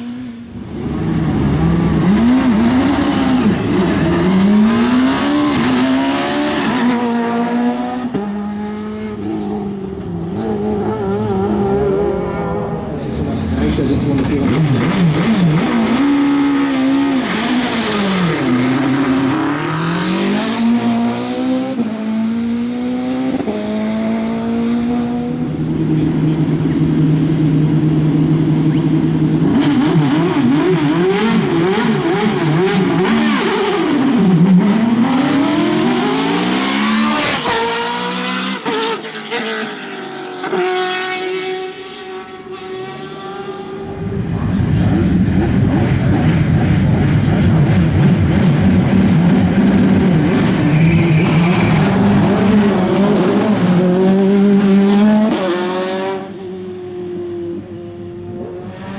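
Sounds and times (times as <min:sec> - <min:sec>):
engine upshifts: 0:00.0 - 0:58.9
race car engine revving: 0:00.0 - 0:58.9
engine blipping: 0:25.0 - 0:32.8, 0:43.8 - 0:56.1.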